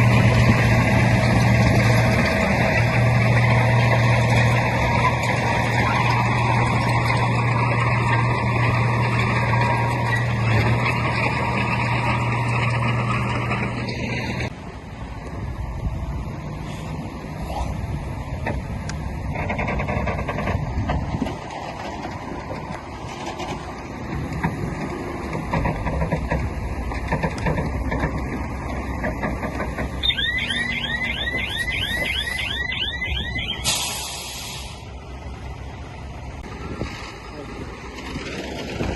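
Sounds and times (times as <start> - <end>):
heavy diesel machinery rumbling: 0.0 - 38.9
reversing alarm chirping: 30.0 - 34.3
short hiss: 33.6 - 34.9.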